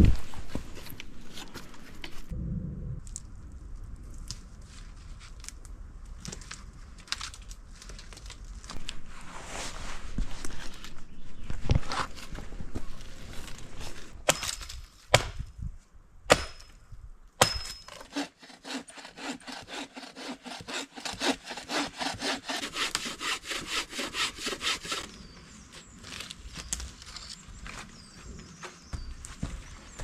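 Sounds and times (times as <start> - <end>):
hand saw cutting wood: 17.4 - 25.1.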